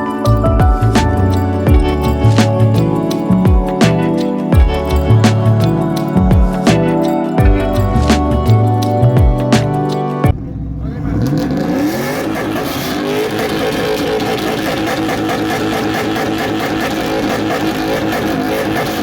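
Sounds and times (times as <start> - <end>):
car engine revving: 10.3 - 19.0.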